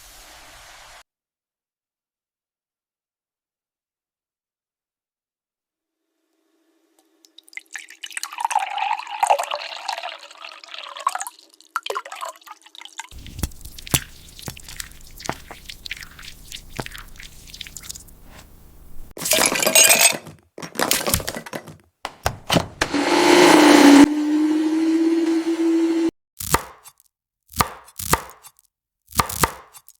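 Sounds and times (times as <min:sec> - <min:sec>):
rushes of pouring noise: 0:07.0 - 0:18.3
ticks and drips: 0:11.8 - 0:18.7
glassy clinking and crackling: 0:13.2 - 0:18.2.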